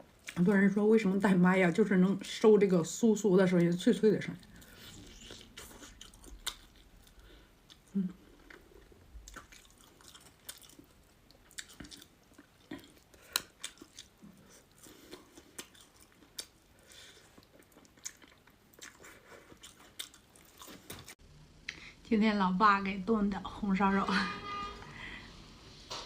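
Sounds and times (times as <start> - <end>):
person chewing crispy food: 4.4 - 21.2.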